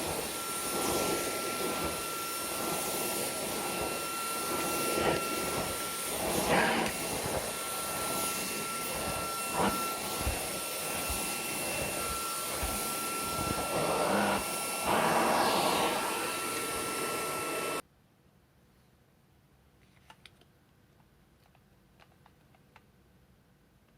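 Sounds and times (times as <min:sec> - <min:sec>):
stick vacuum running: 0:00.0 - 0:17.8.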